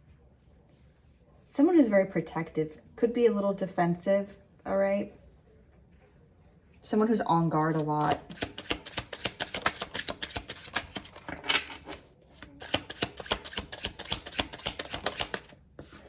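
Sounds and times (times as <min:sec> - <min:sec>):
cards being shuffled: 0:07.7 - 0:16.0.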